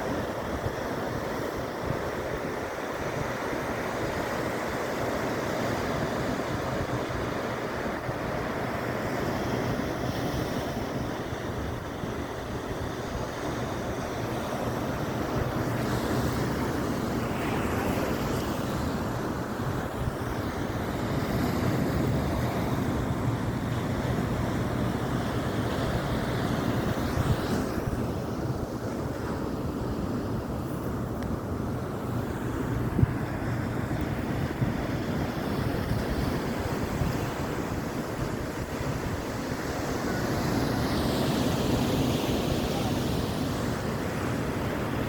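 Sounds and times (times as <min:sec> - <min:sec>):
surf breaking and washing ashore: 0:00.0 - 0:45.0
wind buffeting microphone: 0:09.2 - 0:42.8.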